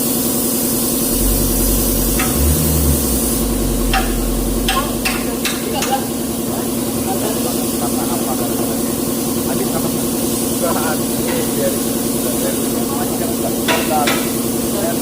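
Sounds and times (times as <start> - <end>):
diesel truck engine idling: 1.0 - 6.4
deep low rumble: 1.1 - 6.2.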